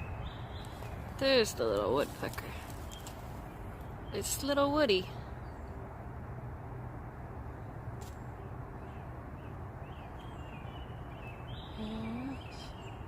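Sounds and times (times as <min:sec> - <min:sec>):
faint bird chirps: 0:09.9 - 0:13.0.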